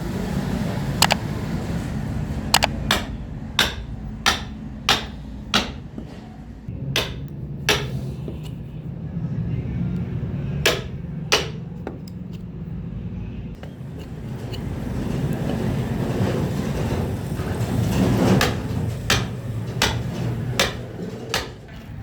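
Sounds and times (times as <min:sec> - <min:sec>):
hammer blows: 0:02.5 - 0:08.6, 0:10.6 - 0:12.0, 0:13.6 - 0:22.0.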